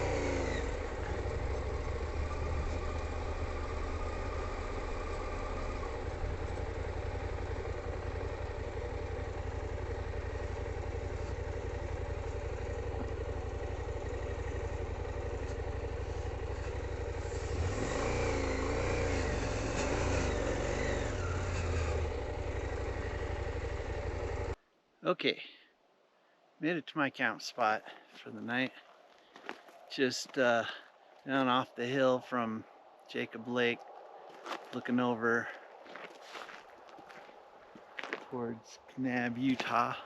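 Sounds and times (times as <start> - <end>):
motorcycle engine running: 0.0 - 24.6.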